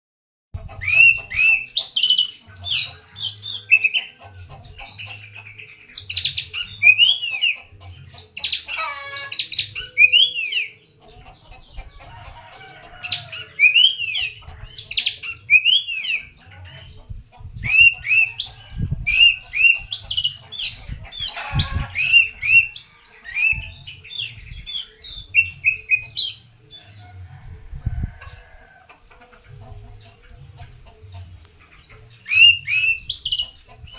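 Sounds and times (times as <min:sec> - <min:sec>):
songbird singing: 0:00.6 - 0:33.9.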